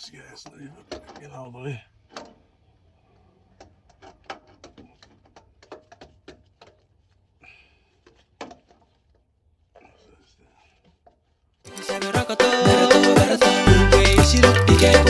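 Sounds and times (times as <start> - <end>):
hand tools clicking on metal: 14.0 - 15.0.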